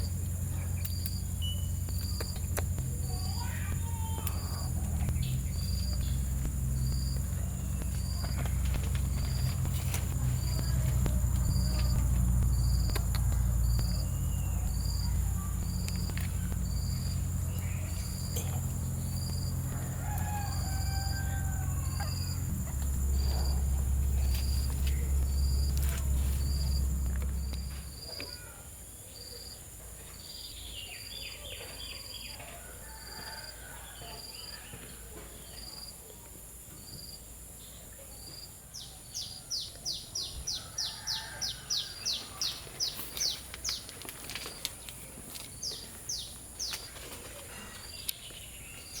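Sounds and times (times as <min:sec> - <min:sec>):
low rumble: 0:00.0 - 0:28.2.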